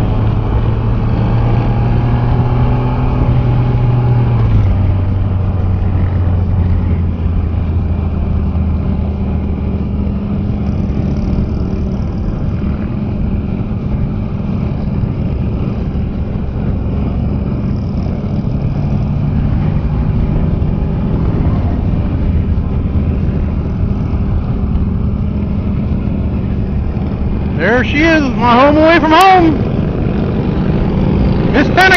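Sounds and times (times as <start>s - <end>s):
motorcycle engine running: 0.0s - 31.9s
road noise rushing: 0.0s - 31.9s.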